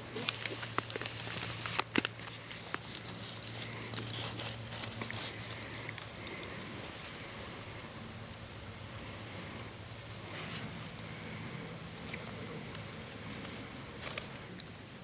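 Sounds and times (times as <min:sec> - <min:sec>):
sizzling hiss: 0:00.1 - 0:02.0
campfire crackling and popping: 0:00.1 - 0:08.9.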